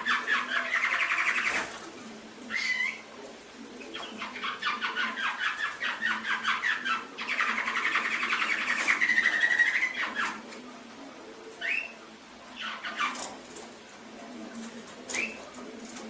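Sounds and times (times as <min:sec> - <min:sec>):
canary singing trills: 0:00.0 - 0:01.7, 0:02.4 - 0:03.1, 0:03.8 - 0:10.4, 0:11.6 - 0:13.3.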